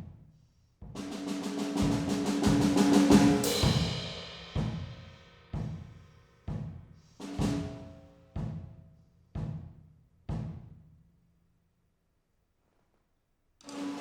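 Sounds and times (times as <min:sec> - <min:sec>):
tom drum roll: 0:01.0 - 0:08.7.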